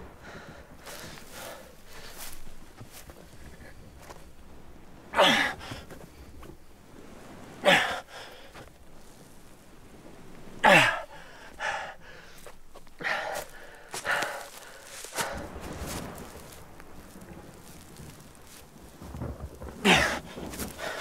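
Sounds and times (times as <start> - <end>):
man grunting and breathing hard: 5.2 - 5.6.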